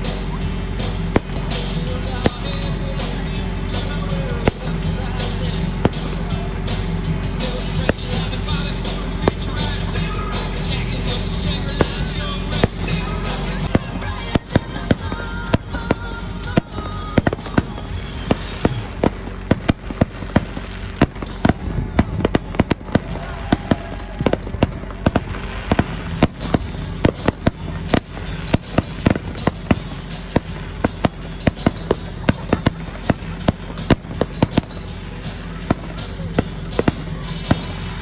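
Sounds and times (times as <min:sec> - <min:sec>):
fireworks bursting: 0:00.0 - 0:38.0
music playing: 0:00.0 - 0:38.0.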